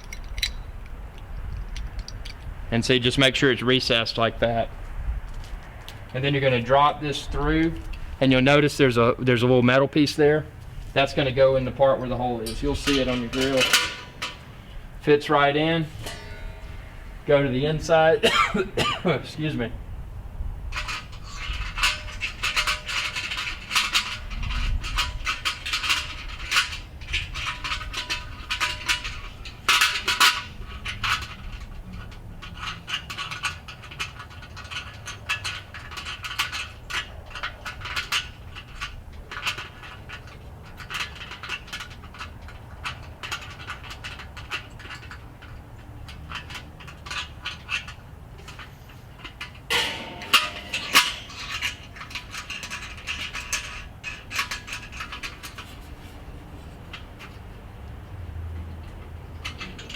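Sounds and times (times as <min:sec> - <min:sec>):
metal clattering: 0:00.0 - 0:02.5, 0:10.9 - 0:18.9, 0:20.7 - 0:57.5
metal clicks and scrapes on grill lid: 0:11.0 - 0:15.0, 0:20.7 - 0:57.5.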